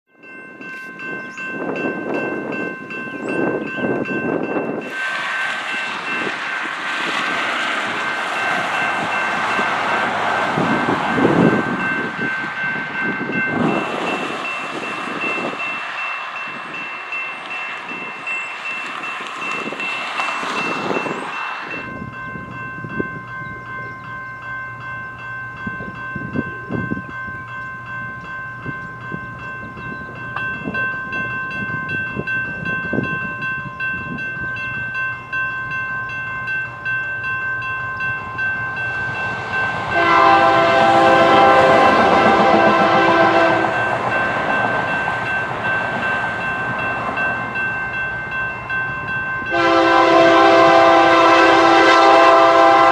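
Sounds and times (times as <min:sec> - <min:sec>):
electronic crossing bell ringing: 0:00.1 - 0:05.0, 0:07.9 - 0:52.9
diesel locomotives rumbling: 0:00.1 - 0:52.9
train air horn blast: 0:40.0 - 0:43.8, 0:49.5 - 0:52.9.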